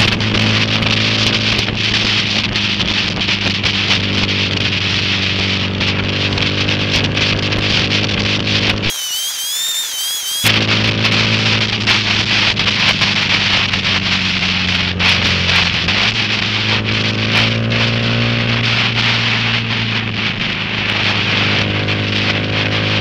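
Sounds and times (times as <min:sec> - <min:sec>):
motorcycle engine running: 0:00.0 - 0:08.9, 0:10.5 - 0:23.0.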